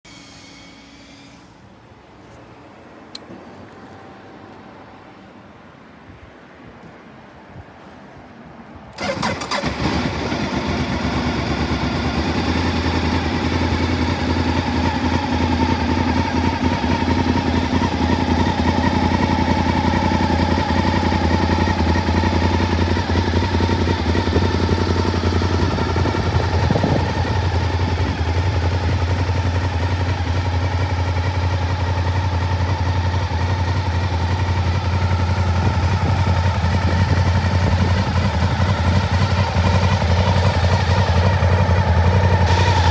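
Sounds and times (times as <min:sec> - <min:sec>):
motorcycle engine starting and idling: 0:08.9 - 0:42.9.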